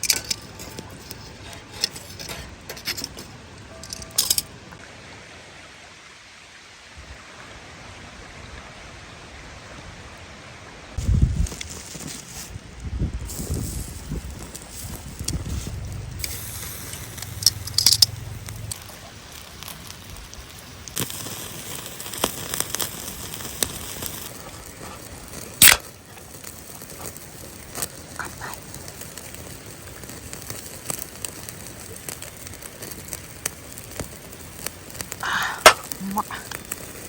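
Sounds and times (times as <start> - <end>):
wood fire crackling: 0.0 - 4.6, 11.0 - 37.0
sharp pops from fire: 13.2 - 37.0.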